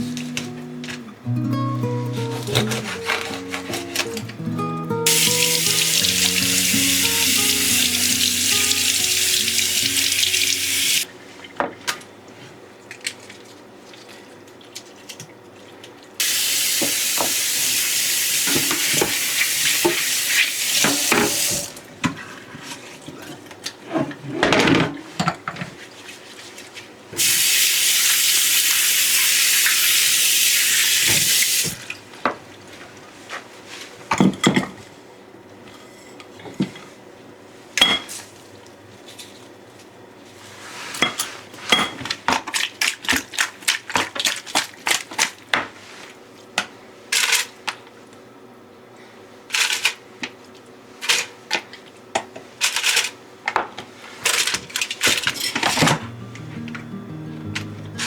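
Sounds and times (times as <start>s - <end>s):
kitchen tap running: 5.1s - 11.0s, 16.2s - 21.8s, 27.2s - 31.8s.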